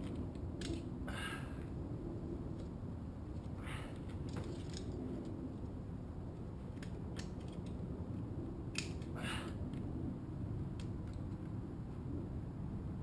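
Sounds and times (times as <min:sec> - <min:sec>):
steady low hum: 0:00.0 - 0:13.0
metal parts rattling scrape: 0:04.1 - 0:05.0.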